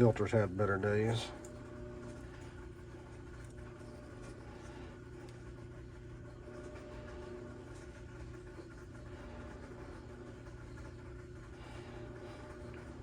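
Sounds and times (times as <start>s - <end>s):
workshop hum: 0.0s - 13.0s.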